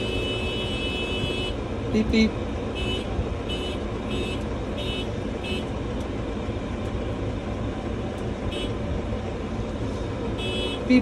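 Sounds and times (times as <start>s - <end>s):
tractor horn beeps: 0.0s - 5.7s, 10.4s - 11.0s
tractor engine running: 0.0s - 11.0s.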